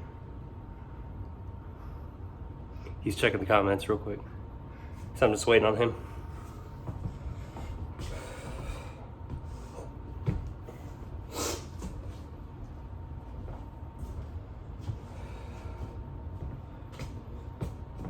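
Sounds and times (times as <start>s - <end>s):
man breathing hard: 6.0s - 11.9s, 14.9s - 16.1s.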